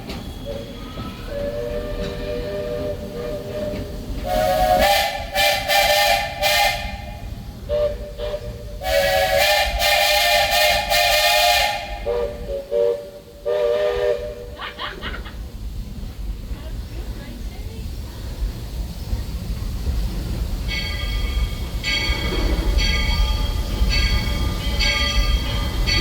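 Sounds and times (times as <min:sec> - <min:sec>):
steam hissing: 0:00.0 - 0:26.0
train rumbling: 0:00.0 - 0:26.0
steam locomotive whistle blasts: 0:00.5 - 0:14.6.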